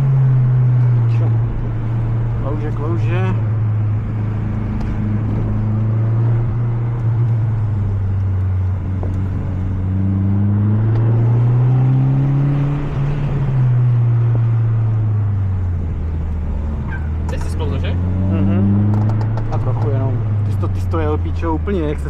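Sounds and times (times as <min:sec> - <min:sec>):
turbocharged car engine under load: 0:00.0 - 0:22.0.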